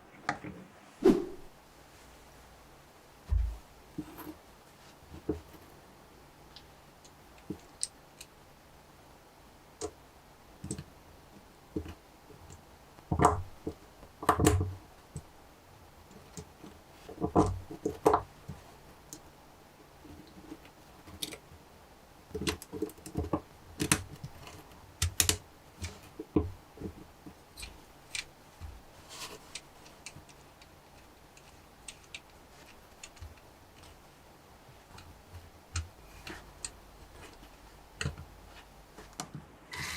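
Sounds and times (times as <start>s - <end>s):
plastic pieces clicking: 29.4s - 34.0s.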